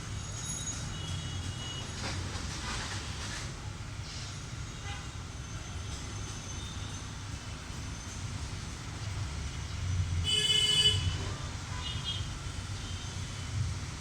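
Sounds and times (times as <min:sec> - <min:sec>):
vehicle horn toot: 0:10.3 - 0:11.1.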